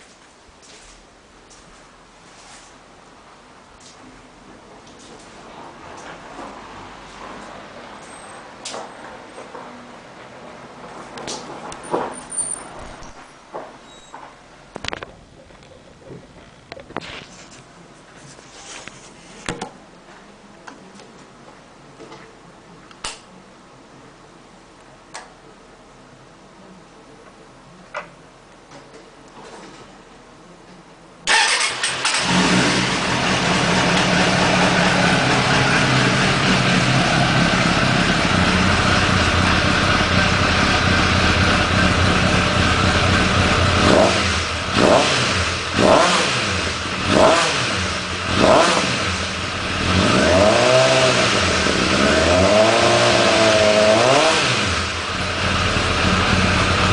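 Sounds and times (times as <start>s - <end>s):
motorcycle engine revving: 31.3s - 56.9s
motorcycle engine starting: 31.3s - 56.9s
motorcycle engine idling: 32.3s - 44.8s, 55.0s - 56.9s.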